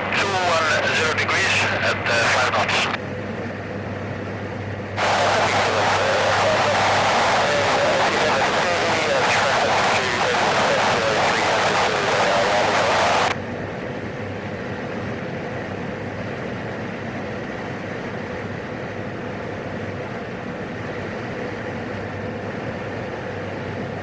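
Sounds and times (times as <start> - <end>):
burst of radio hiss: 0.0 - 3.0, 5.0 - 13.4
turboprop engine drone: 0.0 - 24.0.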